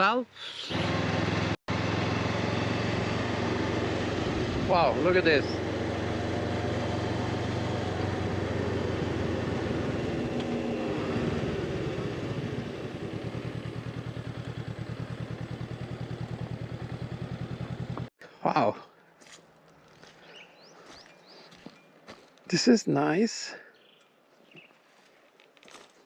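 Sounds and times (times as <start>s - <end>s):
motorcycle engine running: 0.6s - 18.1s
wind and road noise: 0.6s - 18.1s.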